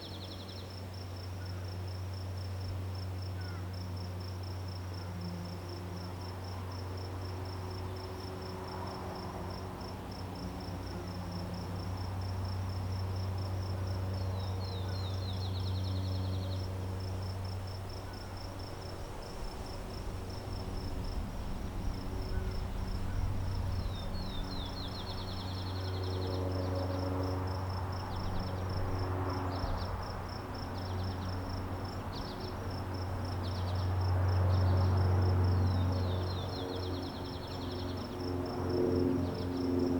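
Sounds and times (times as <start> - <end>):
constant low hum: 0.0 - 39.9
high-pitched pulsing insect chirp: 0.0 - 39.9.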